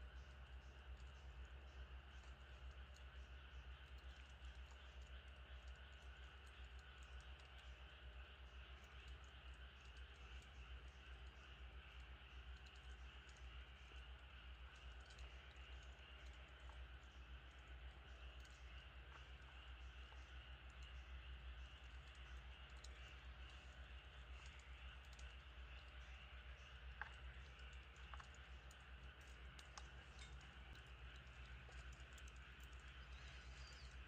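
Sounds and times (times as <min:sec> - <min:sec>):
low steady hum: 0:00.0 - 0:34.0
wood fire crackling: 0:26.8 - 0:34.0.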